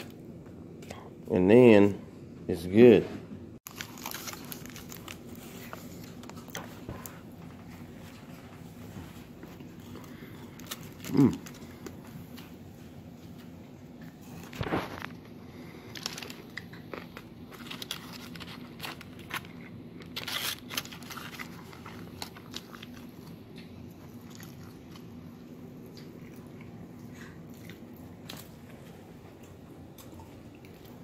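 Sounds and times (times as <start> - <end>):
biting and chewing tacos: 3.6 - 31.0
foil wrapper crinkling: 3.7 - 6.7, 14.3 - 23.4.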